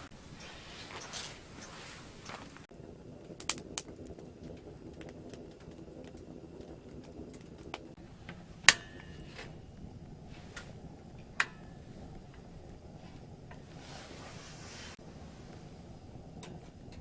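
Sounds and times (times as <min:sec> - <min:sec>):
low steady hum: 0:00.0 - 0:17.0
sharp cracks or pops: 0:03.3 - 0:04.3.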